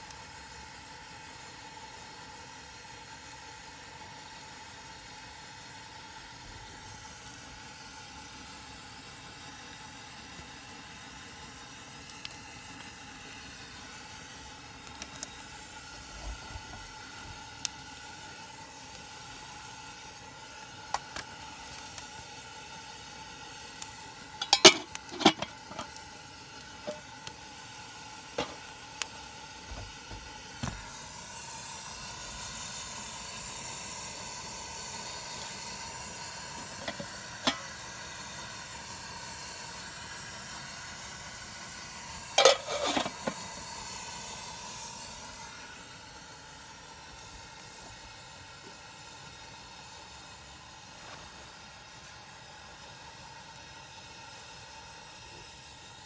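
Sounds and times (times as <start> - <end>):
food sizzling in a pan: 0.0 - 56.0
utensils clinking on cookware: 24.4 - 25.9, 26.8 - 27.0, 36.8 - 37.7, 42.4 - 43.4.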